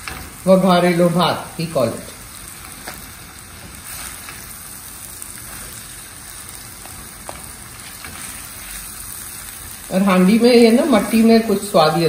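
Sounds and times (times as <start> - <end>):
rice sizzling in oil: 0.0 - 12.0.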